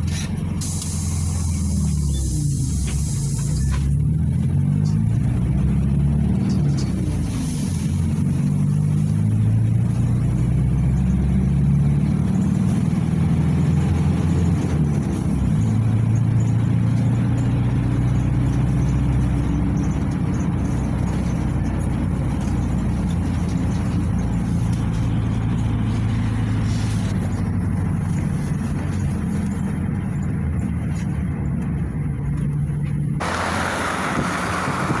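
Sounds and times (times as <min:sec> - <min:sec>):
bus diesel engine: 0:00.0 - 0:35.0
hiss: 0:00.6 - 0:03.9, 0:07.2 - 0:08.3, 0:33.2 - 0:35.0.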